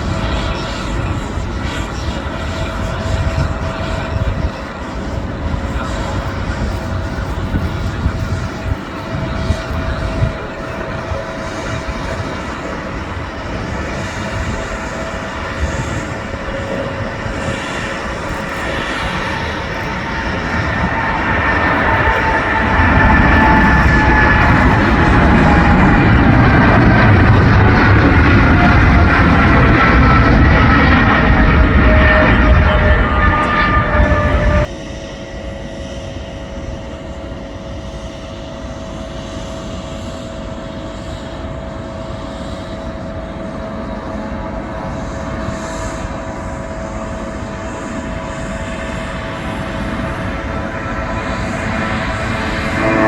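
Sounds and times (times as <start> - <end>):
airliner engines rumbling: 0.0 - 53.0.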